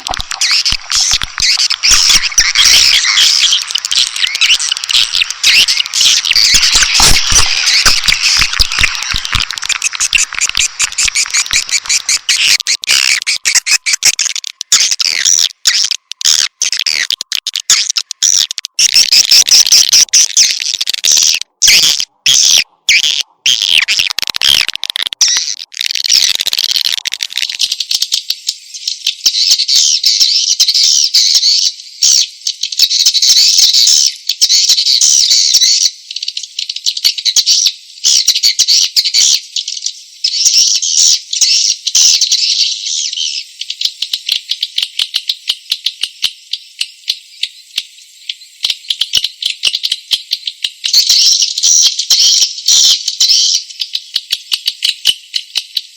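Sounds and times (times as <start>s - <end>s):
swiftlets twittering chirps: 0.0s - 28.1s.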